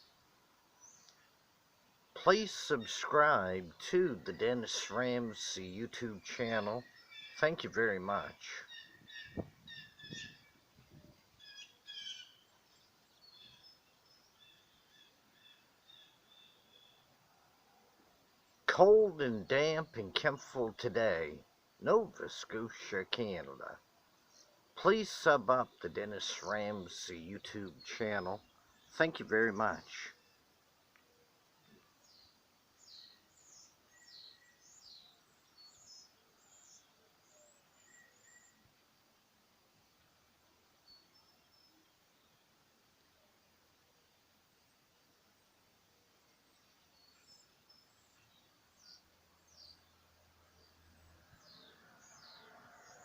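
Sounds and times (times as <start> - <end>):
songbird chirping: 0.0 - 53.0
faint bird calls: 6.4 - 18.0, 31.0 - 38.6.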